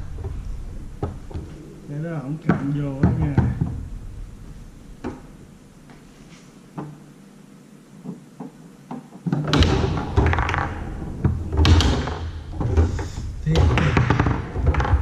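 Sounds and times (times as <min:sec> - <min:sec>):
foosball ball knocks and clatter: 0:08.0 - 0:15.0.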